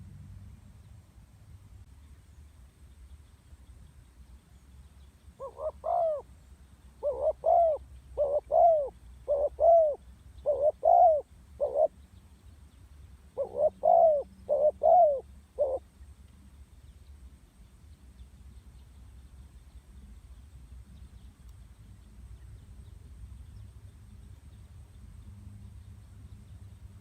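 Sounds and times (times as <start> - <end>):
dove cooing: 5.4 - 6.2, 7.0 - 11.9, 13.4 - 15.8.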